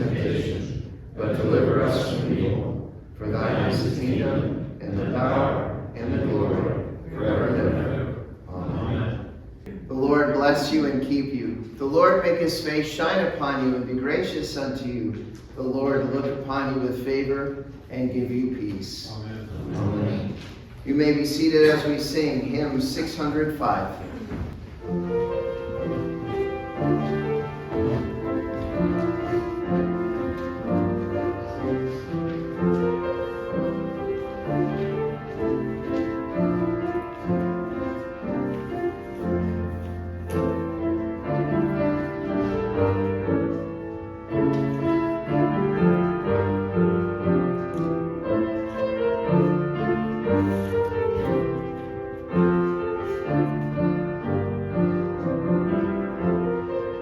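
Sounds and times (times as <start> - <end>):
piano playing hymn chords: 0.0 - 57.0.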